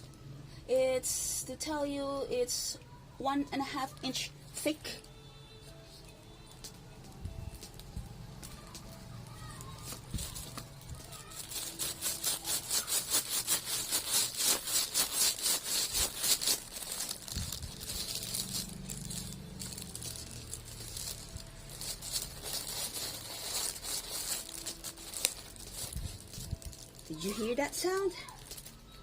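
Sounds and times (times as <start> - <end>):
knife sawing through soap: 11.6 - 16.7.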